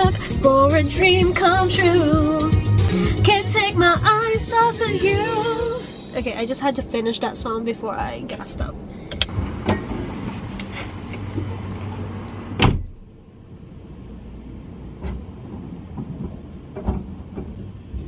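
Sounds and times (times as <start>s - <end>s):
car warning chime beeping: 9.8s - 13.0s
car door shutting: 12.5s - 13.1s.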